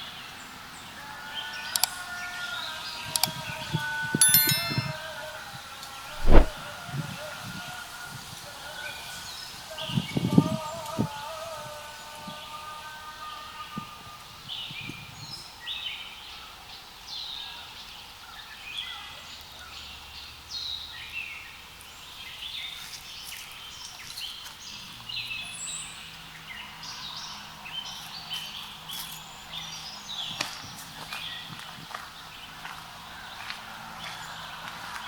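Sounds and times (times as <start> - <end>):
sharp click: 6.2 - 6.6.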